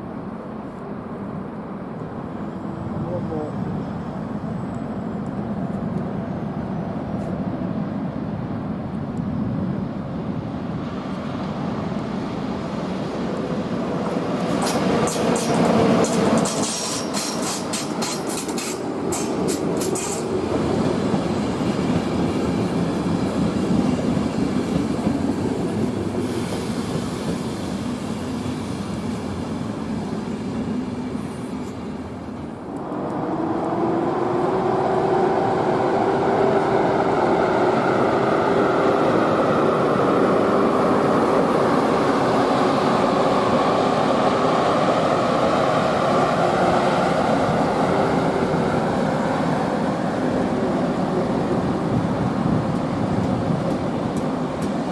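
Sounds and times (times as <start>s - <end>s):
train rumbling: 0.0s - 54.9s
wheels clicking over rail joints: 14.0s - 20.4s.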